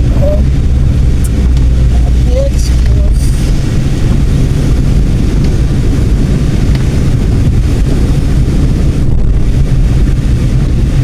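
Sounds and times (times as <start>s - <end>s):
car interior road rumble: 0.0s - 11.0s.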